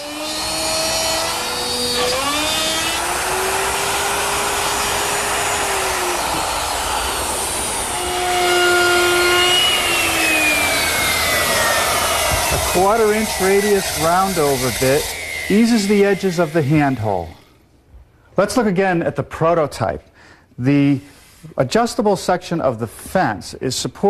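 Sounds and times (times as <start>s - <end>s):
electric router cutting wood: 0.0s - 17.6s.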